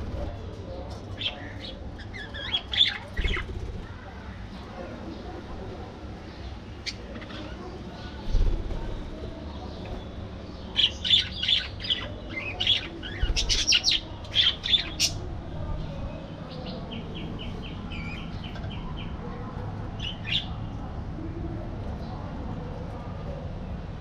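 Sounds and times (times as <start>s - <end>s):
steady low background noise: 0.0s - 24.0s
budgerigars chirping and squawking: 1.2s - 3.6s, 10.7s - 15.2s.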